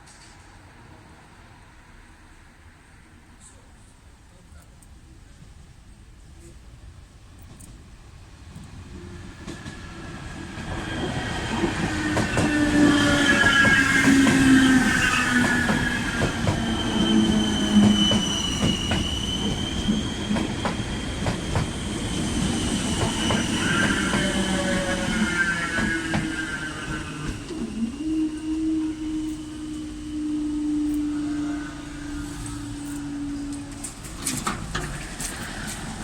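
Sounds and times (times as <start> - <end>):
train passing: 0.0 - 4.4, 5.0 - 36.0
wheels squealing: 10.8 - 36.0
wheels clicking over rail joints: 32.8 - 36.0.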